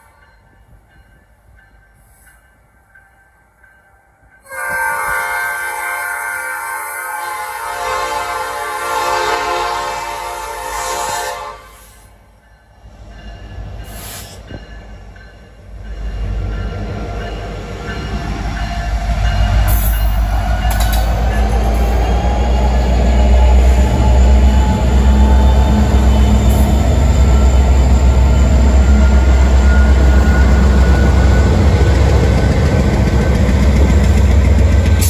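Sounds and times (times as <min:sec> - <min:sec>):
diesel locomotives rumbling past: 0:00.0 - 0:35.0
locomotive air horn: 0:04.4 - 0:12.2.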